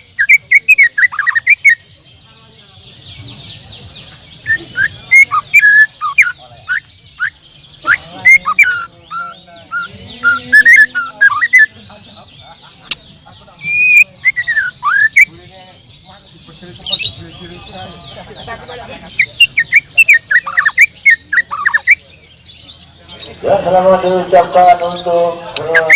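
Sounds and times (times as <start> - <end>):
songbirds whistling and chirping: 0.0 - 25.9
high twittering chorus: 4.4 - 22.6.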